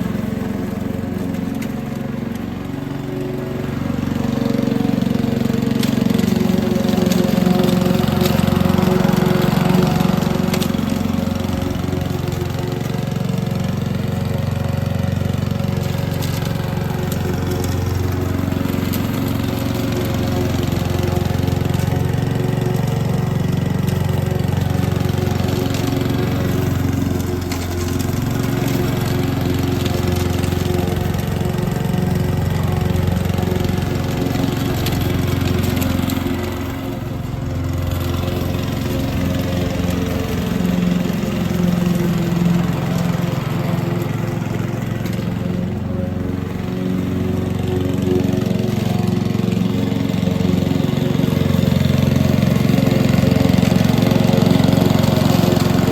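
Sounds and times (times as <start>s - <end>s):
lawn mower engine running: 0.0s - 55.9s.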